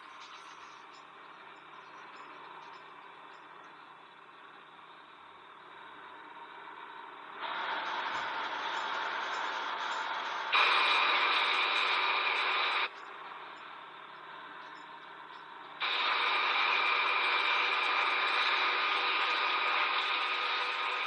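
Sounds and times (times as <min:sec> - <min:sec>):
film soundtrack hiss: 0:00.0 - 0:21.0.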